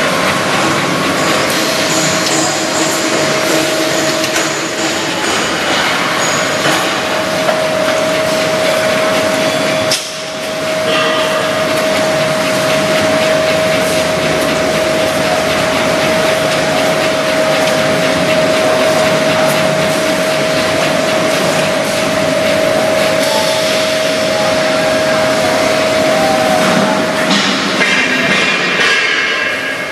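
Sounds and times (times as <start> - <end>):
constant machine whine: 0.0 - 29.9
machine clatter and hiss: 0.0 - 29.9.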